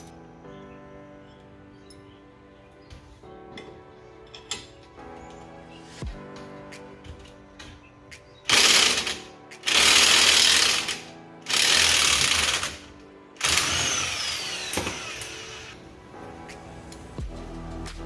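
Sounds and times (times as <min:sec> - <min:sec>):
background music: 0:00.0 - 0:18.0
impact wrench bursts: 0:08.5 - 0:12.8, 0:13.4 - 0:15.8.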